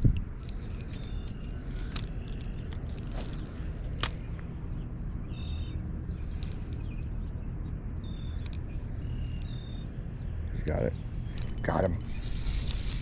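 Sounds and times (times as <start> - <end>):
clicks and rustles: 0.0 - 4.5
low outdoor rumble: 0.0 - 13.0.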